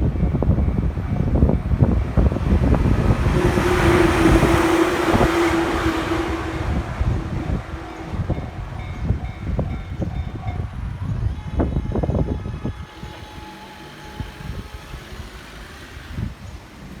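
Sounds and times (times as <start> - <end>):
low train rumble: 0.0 - 17.0.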